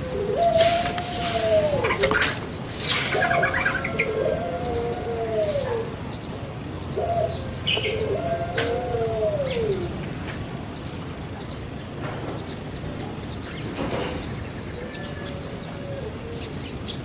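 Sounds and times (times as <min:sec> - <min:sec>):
dove cooing: 0:00.0 - 0:06.1, 0:06.9 - 0:10.2, 0:14.8 - 0:17.0.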